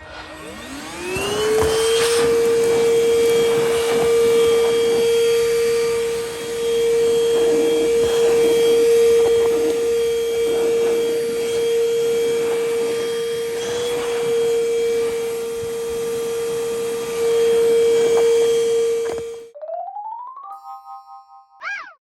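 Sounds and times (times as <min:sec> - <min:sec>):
handheld vacuum running: 0:00.0 - 0:19.5
rubbing and handling noise: 0:00.0 - 0:19.5.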